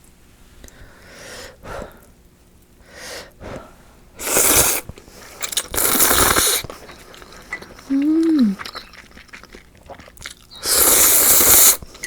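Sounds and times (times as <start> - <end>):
slurping noodles: 4.2 - 12.0.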